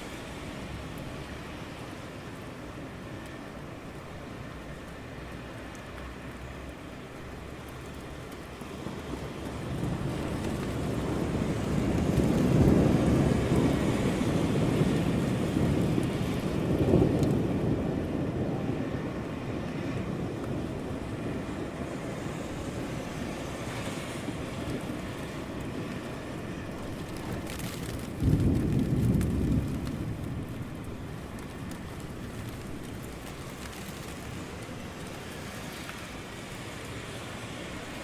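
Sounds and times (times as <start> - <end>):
steady rain: 0.0 - 38.0
rolling thunder: 9.5 - 23.2, 24.3 - 34.9.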